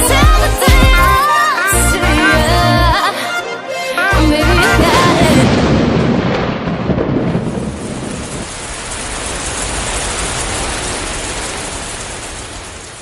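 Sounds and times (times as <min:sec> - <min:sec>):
rain hiss: 0:05.4 - 0:13.0.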